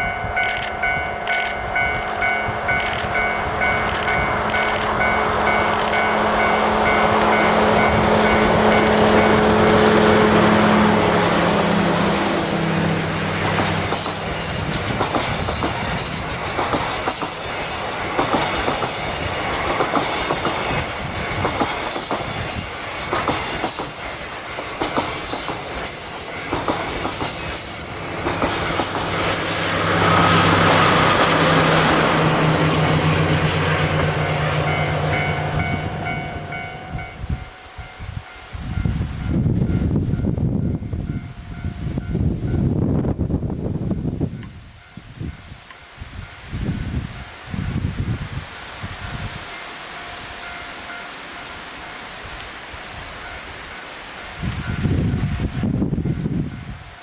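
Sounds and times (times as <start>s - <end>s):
diesel locomotive engine: 0.0s - 57.0s
train wheels clacking over rail joints: 13.0s - 35.7s.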